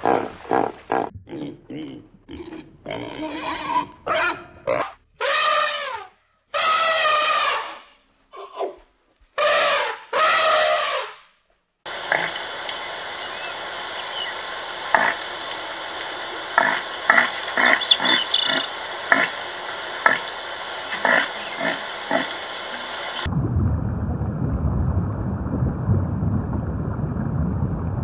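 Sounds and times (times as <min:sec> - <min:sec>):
low steady rushing noise: 0:11.9 - 0:28.0
faint bird chirps: 0:12.7 - 0:15.6.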